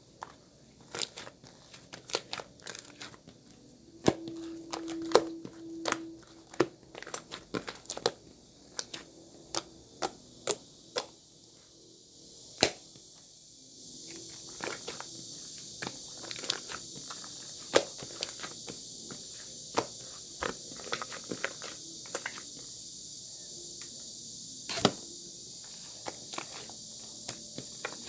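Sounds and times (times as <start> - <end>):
faint hiss: 0.0 - 28.0.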